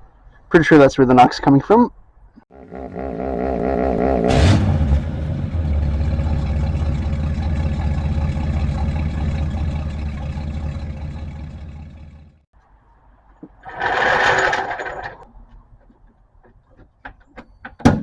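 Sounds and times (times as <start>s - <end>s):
motor running: 2.6s - 12.4s
loud clatter: 4.3s - 12.4s.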